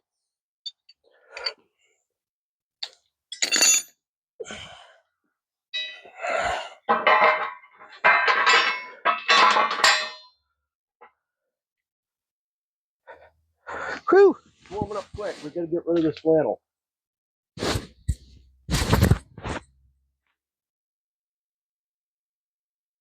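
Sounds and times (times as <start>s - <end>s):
metal tools clanking: 2.8s - 3.9s, 5.8s - 6.1s, 6.9s - 10.3s.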